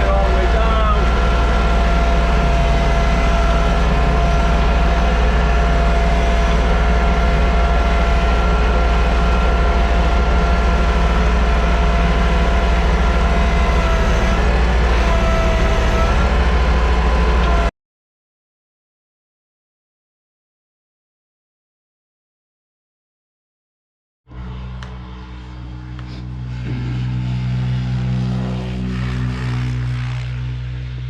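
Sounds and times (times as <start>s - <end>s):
tractor diesel engine running: 0.0s - 17.7s, 24.3s - 31.0s.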